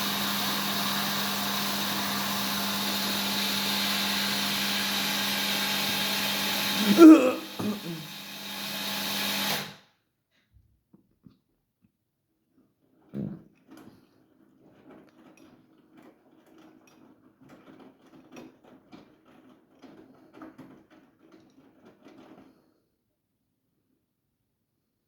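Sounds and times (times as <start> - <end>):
washing machine motor hum: 0.0 - 9.7
laundry and water sloshing in drum: 12.8 - 22.7.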